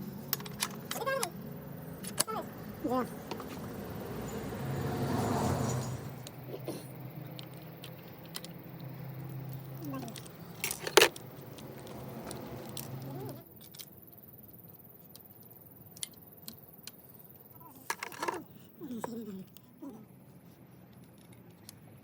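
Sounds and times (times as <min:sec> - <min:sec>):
metal tools clinking: 0:00.0 - 0:06.4, 0:09.3 - 0:13.3.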